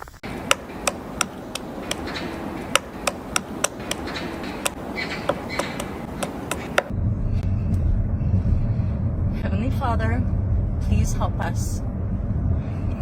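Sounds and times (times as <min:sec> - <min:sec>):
steady low rumble: 0:00.0 - 0:13.0
sharp taps or knocks: 0:00.4 - 0:06.9.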